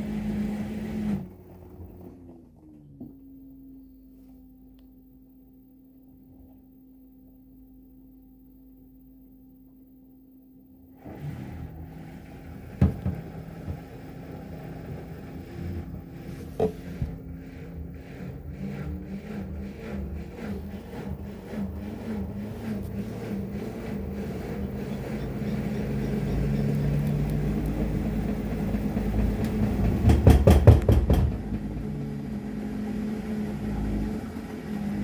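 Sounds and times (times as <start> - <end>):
washer-dryer whistling hum: 0.0 - 35.0
washing machine drum rumbling: 12.2 - 35.0
drum knocking against door glass: 28.0 - 31.8.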